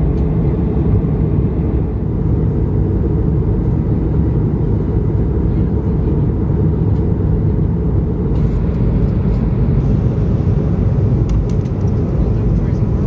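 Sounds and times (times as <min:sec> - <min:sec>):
engine and airflow rumble: 0:00.0 - 0:13.0.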